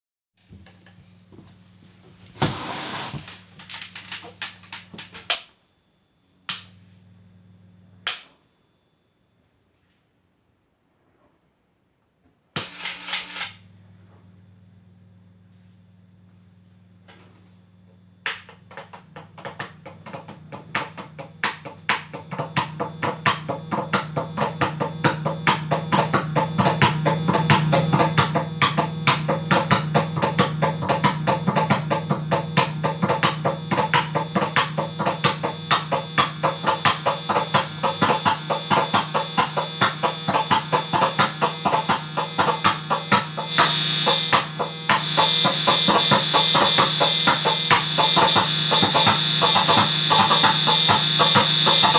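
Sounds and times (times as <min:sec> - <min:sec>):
steady low hum: 0:00.5 - 0:05.3, 0:06.3 - 0:08.1, 0:12.8 - 0:51.9
high steady whine: 0:00.5 - 0:05.4, 0:12.6 - 0:51.9
distorted clicks: 0:18.2 - 0:51.9.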